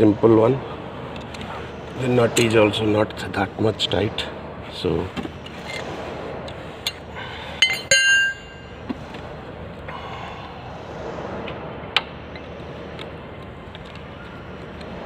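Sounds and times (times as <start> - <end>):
socket tools clinking on metal: 7.6 - 8.6.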